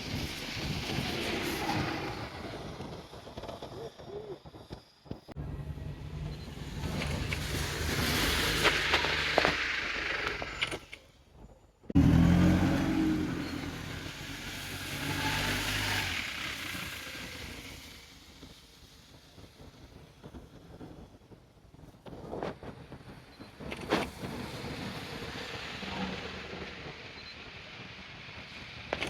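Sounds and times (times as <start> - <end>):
loud vehicle engine passing: 12.0 - 18.1.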